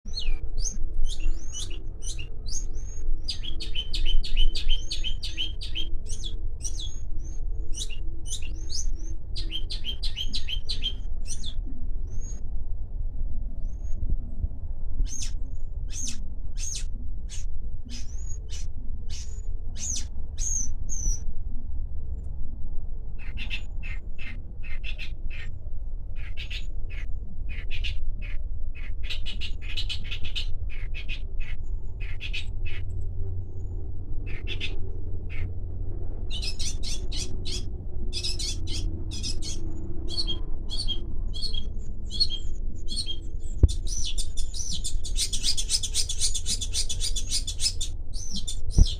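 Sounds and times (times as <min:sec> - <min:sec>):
steady low rumble: 0:00.0 - 0:48.9
bird singing sharp high calls: 0:00.1 - 0:12.4, 0:15.0 - 0:21.2, 0:36.3 - 0:48.9.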